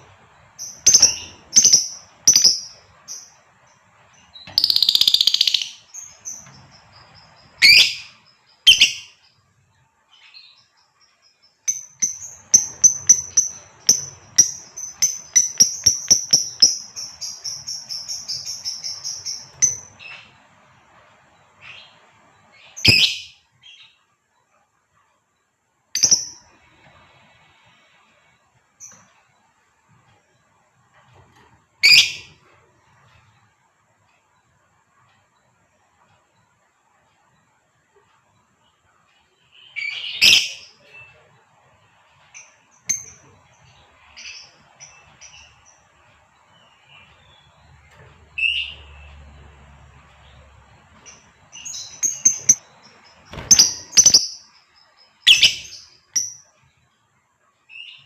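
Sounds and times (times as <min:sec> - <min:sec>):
lovebird chirping calls: 0:00.4 - 0:09.4, 0:10.1 - 0:20.5, 0:21.6 - 0:24.0, 0:26.0 - 0:26.8, 0:31.8 - 0:32.4, 0:39.4 - 0:41.1, 0:50.2 - 0:56.6
short high bird chirps: 0:22.8 - 0:23.5, 0:53.2 - 0:54.5, 0:55.2 - 0:56.4.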